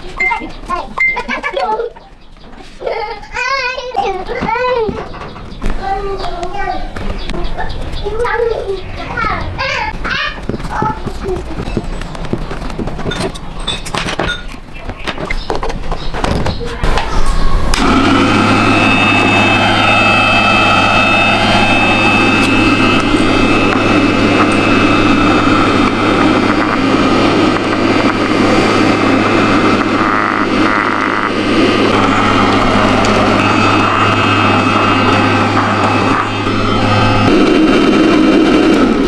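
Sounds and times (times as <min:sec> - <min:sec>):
vacuum cleaner motor whirring: 0:16.3 - 0:39.0.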